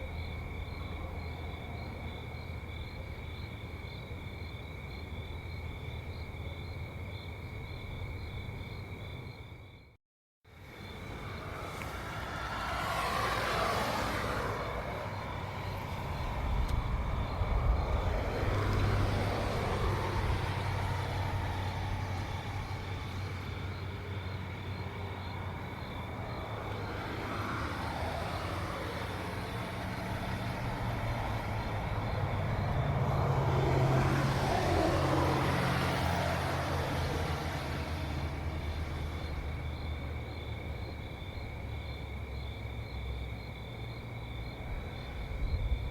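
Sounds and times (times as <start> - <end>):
vehicles passing by: 0.0 - 9.6, 10.5 - 45.9
low engine hum: 10.6 - 45.9.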